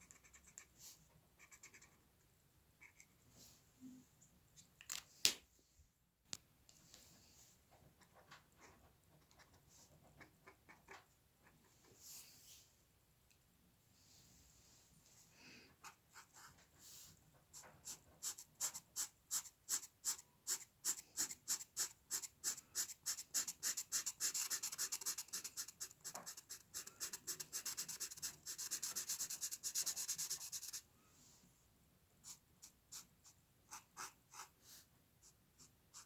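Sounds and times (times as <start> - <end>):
drawing tool scratching on paper: 17.8 - 30.8.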